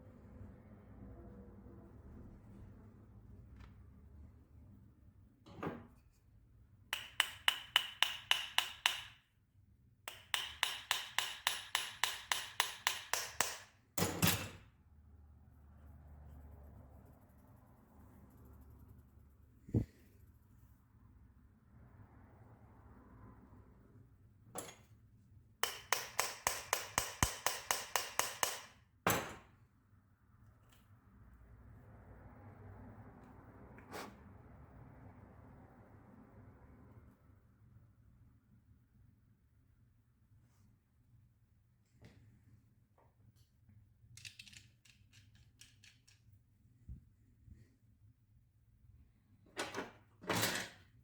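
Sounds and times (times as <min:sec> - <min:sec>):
hammer tapping on metal: 0:06.9 - 0:09.2, 0:10.1 - 0:13.7, 0:25.6 - 0:28.8.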